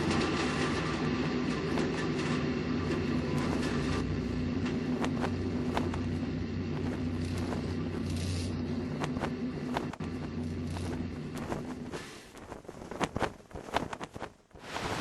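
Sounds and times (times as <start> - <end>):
low droning rumble: 0.0 - 12.0
crackles and clicks: 0.0 - 15.0.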